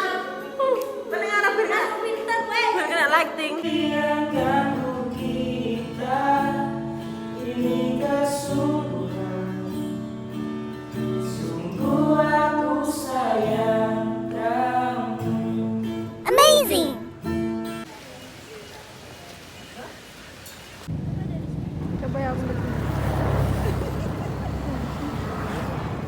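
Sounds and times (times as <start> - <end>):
voices singing together: 3.4 - 9.8, 11.2 - 16.0.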